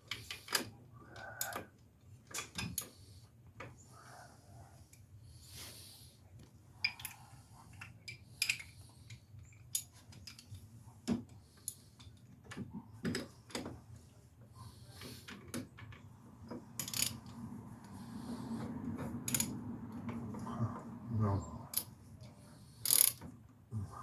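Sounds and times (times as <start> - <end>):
faint low hum: 12.6 - 24.0.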